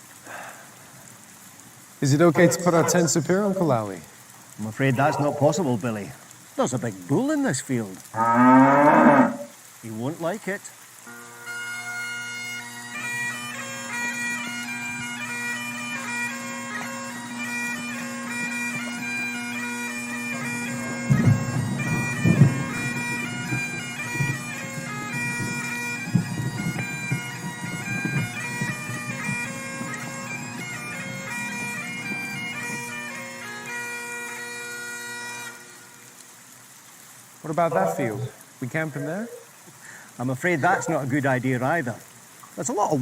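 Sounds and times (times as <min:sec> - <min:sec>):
bagpipe music: 0:02.2 - 0:03.6, 0:04.7 - 0:05.7, 0:11.0 - 0:36.2.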